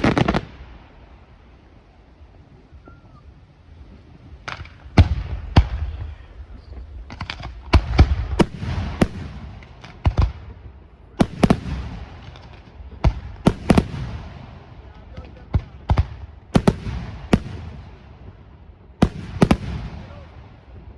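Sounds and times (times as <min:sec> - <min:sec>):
fireworks bangs: 0:00.0 - 0:01.2, 0:03.8 - 0:20.9
rumbling echo: 0:07.7 - 0:20.9.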